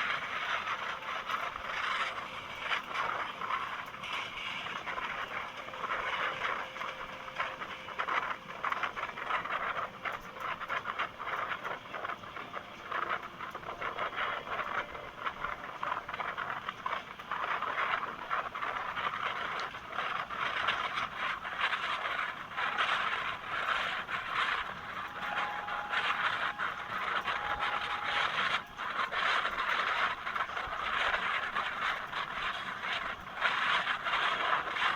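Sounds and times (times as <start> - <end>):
train wheels clattering on rails: 0.0 - 34.9.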